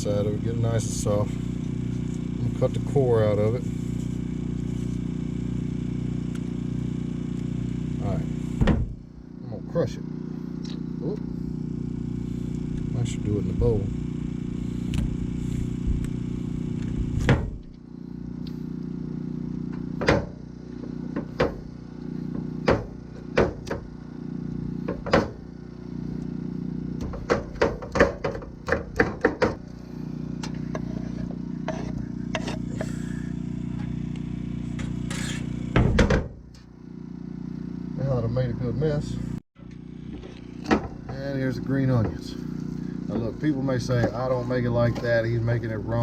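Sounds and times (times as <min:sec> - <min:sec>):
low motor hum: 0:00.0 - 0:46.0.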